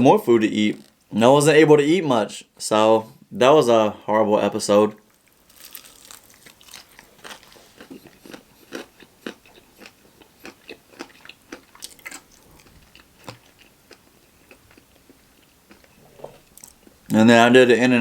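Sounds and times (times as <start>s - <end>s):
crunching and chewing fried chicken: 5.0s - 17.2s.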